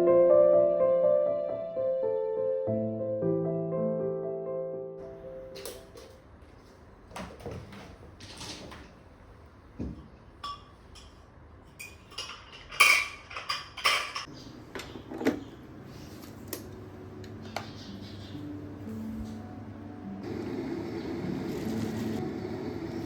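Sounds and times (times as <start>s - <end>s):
dishes and utensils clinking: 10.4s - 15.4s.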